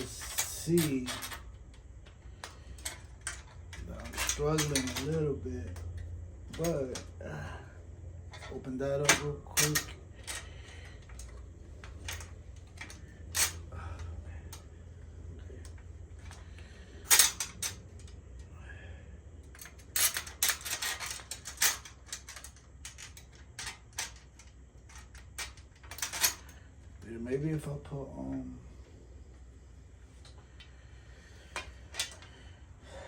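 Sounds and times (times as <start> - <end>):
hand tools clattering: 0.0 - 7.6, 8.3 - 14.7, 15.6 - 18.5, 19.4 - 26.6
metal bicycle parts clanking: 0.0 - 7.6, 8.3 - 14.7, 15.4 - 18.6, 19.4 - 26.6, 31.4 - 32.5.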